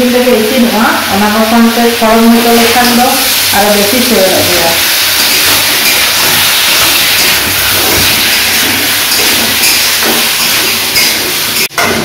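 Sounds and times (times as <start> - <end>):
vegetables sizzling in hot oil: 0.0 - 11.8.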